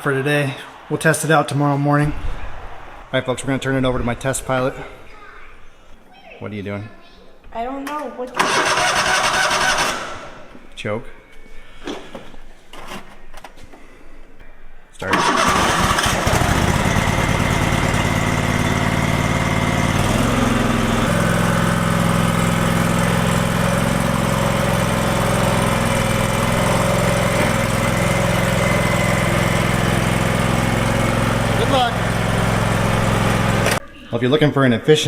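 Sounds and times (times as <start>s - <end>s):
engine cranking: 8.4s - 10.0s, 15.1s - 18.1s
lawn tractor engine running: 8.4s - 10.0s, 15.1s - 33.8s.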